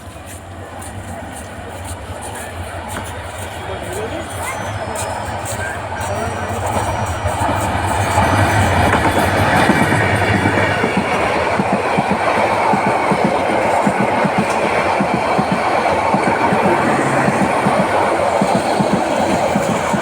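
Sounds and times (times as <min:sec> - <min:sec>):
train wheels clattering over rails: 0:00.0 - 0:20.0.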